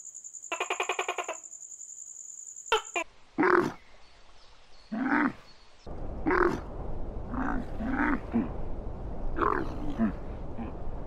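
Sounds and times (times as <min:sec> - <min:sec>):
steady low rumble: 0:05.8 - 0:11.0.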